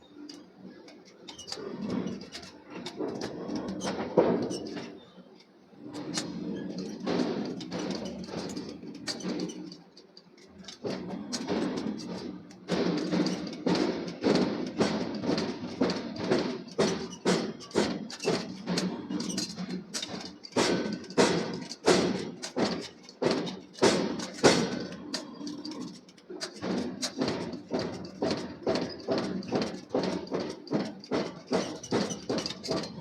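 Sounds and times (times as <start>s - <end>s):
hammer striking hot steel: 20.1s - 25.2s.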